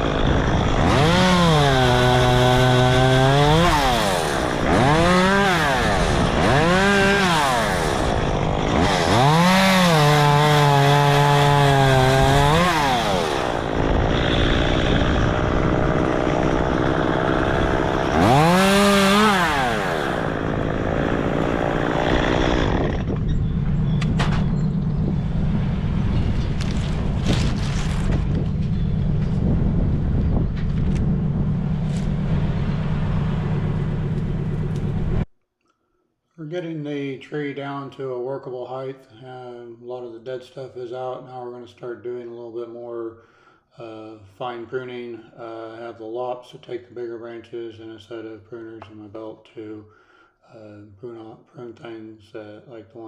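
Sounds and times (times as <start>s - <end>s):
chainsaw revving: 0.0s - 23.2s.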